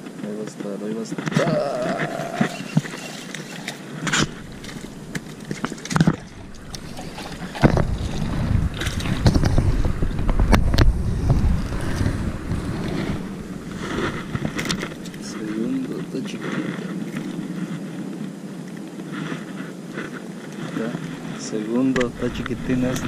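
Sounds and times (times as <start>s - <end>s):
fish splashing in water: 2.0s - 10.3s
wind rumble on microphone: 3.8s - 23.0s.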